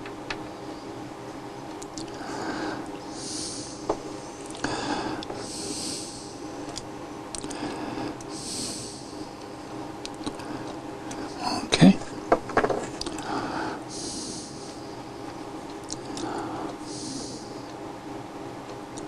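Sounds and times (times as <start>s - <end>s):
person breathing through nose: 2.0s - 6.4s, 7.4s - 9.4s, 13.1s - 15.1s, 16.0s - 17.7s.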